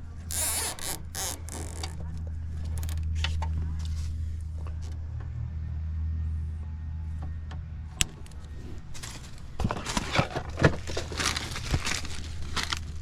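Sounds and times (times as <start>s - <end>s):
steady low hum: 0.0s - 13.0s
rustling and crinkling of plastic parts: 8.0s - 13.0s.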